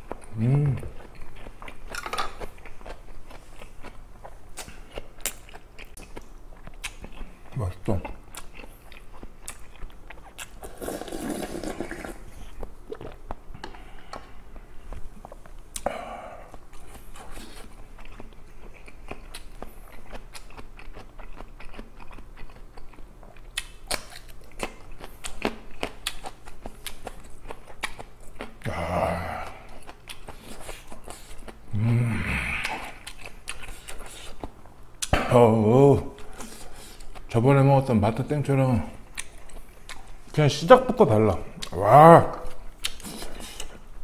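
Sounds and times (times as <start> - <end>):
chewing and crunching food: 0.0 - 35.2, 36.1 - 44.0
short vocal sound: 0.3 - 1.0, 28.6 - 29.7, 31.7 - 33.0
slurping stew: 10.6 - 12.6.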